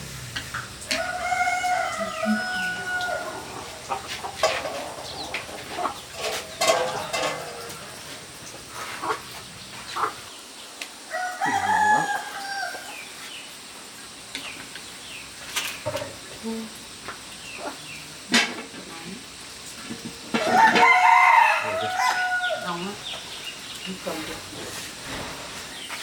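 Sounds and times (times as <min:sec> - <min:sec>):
chickens clucking: 0:00.0 - 0:10.4, 0:16.9 - 0:18.7, 0:19.8 - 0:26.0
rooster crowing: 0:00.6 - 0:08.4, 0:11.0 - 0:13.1, 0:20.4 - 0:23.1.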